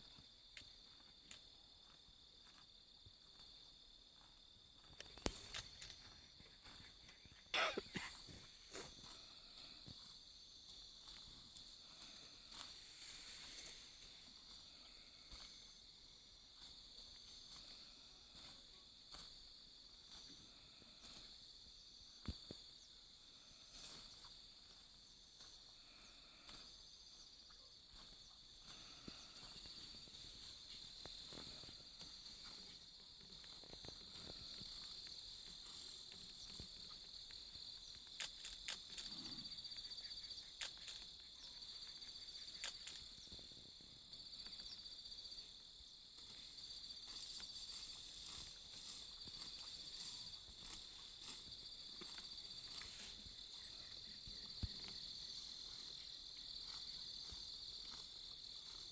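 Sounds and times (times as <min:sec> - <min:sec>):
crickets buzzing: 0:00.0 - 0:58.9
short snaps and crackles: 0:38.1 - 0:39.1.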